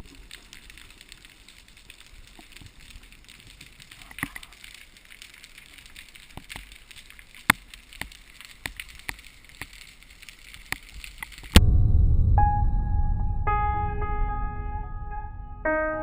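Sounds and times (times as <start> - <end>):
sharp clicks and ticks: 0.0 - 11.8
faint steady hiss: 0.0 - 12.6.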